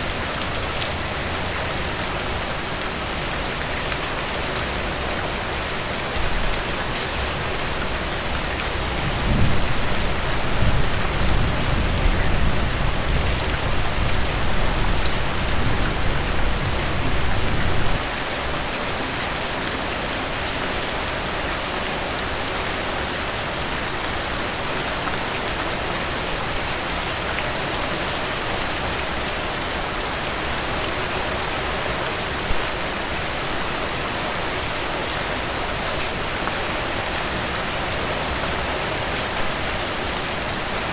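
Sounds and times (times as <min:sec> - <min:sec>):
heavy rain: 0:00.0 - 0:40.9
low thunder rumble: 0:09.0 - 0:18.0.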